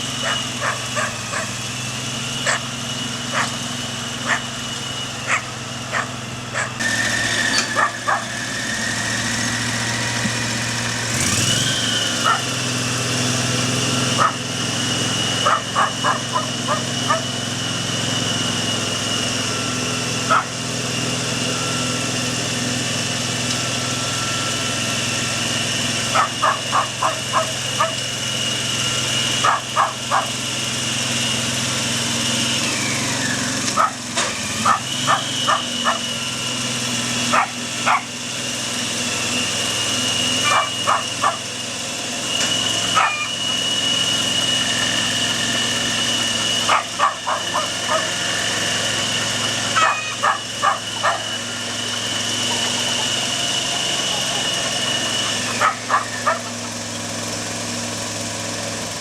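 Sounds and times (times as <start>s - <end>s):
cultivator engine running: 0.0s - 59.0s
dog barking: 0.2s - 1.5s, 2.4s - 2.7s, 3.3s - 3.6s, 4.2s - 4.5s, 5.3s - 6.8s, 7.8s - 8.3s, 12.2s - 12.5s, 14.2s - 14.4s, 15.4s - 17.3s, 20.3s - 20.6s, 26.1s - 28.0s, 29.4s - 30.4s, 33.8s - 36.2s, 37.3s - 38.1s, 40.4s - 41.5s, 43.0s - 43.3s, 46.7s - 48.2s, 49.8s - 51.4s, 55.5s - 56.6s.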